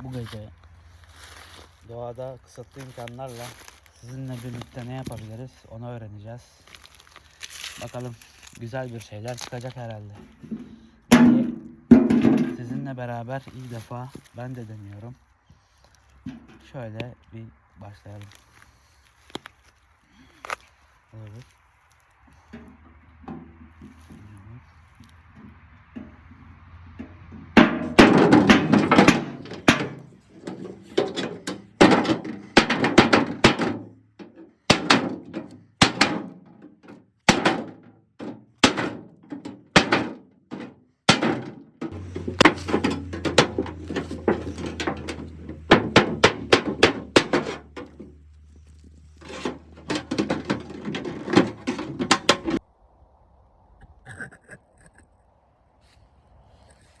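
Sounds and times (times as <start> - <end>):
hammering knocks: 10.2 - 12.9, 25.4 - 52.6.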